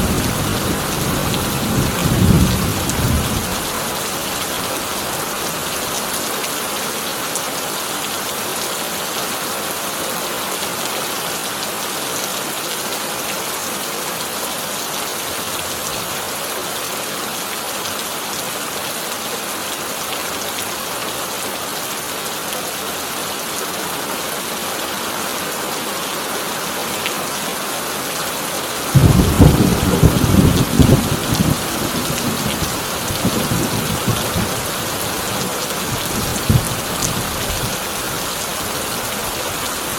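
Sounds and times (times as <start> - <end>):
heavy rain on a tin roof: 0.0 - 39.9
thunder rumble with cracks: 28.9 - 34.6, 35.9 - 37.7.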